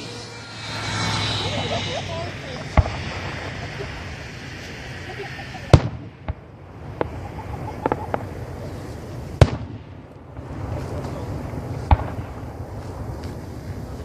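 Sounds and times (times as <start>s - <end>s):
firework booms: 1.5s - 8.3s, 9.3s - 13.2s
firework cracks: 2.2s - 14.0s.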